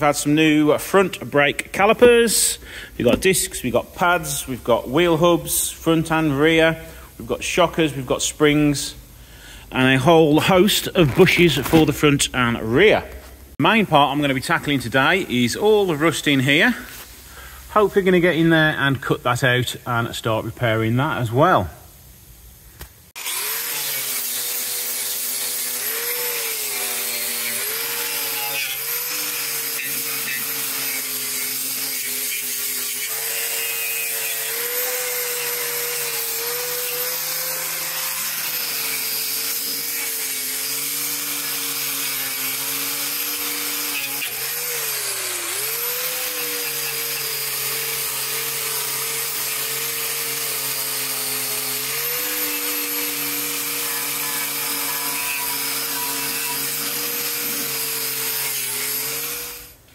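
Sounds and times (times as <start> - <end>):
angle grinder cutting metal: 23.2 - 59.9.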